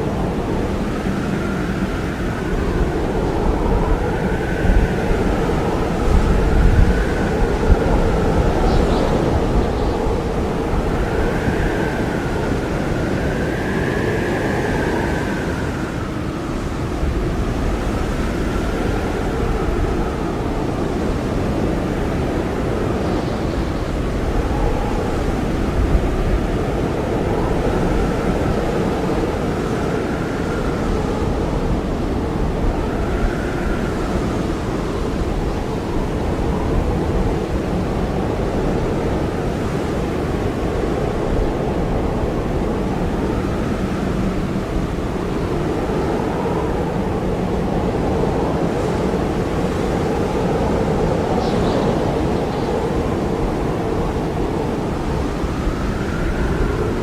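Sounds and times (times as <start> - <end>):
blizzard wind roaring: 0.0 - 57.0
faint wavering whistling: 1.3 - 16.5.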